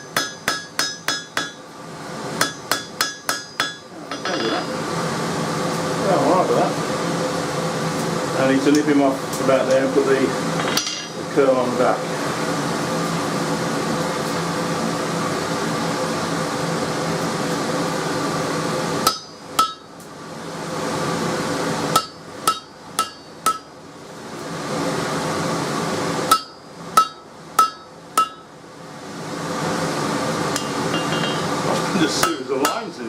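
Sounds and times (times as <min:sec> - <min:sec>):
hammer ringing on anvil: 0:00.0 - 0:01.6, 0:02.4 - 0:04.8, 0:10.6 - 0:11.2, 0:19.0 - 0:19.9, 0:22.0 - 0:23.7, 0:26.3 - 0:28.5, 0:30.6 - 0:31.5, 0:32.2 - 0:33.0
steady rushing hum: 0:00.0 - 0:33.0.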